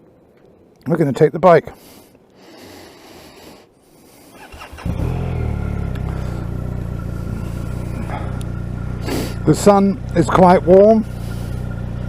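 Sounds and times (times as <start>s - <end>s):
motorcycle engine starting and idling: 4.3s - 12.0s.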